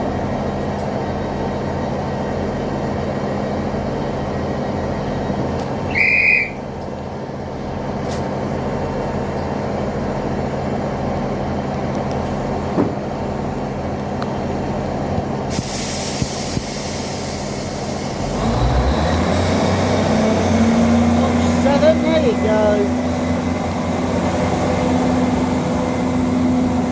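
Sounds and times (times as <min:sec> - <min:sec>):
diesel train engine hum: 0:00.0 - 0:26.9
hiss of air: 0:15.4 - 0:18.3.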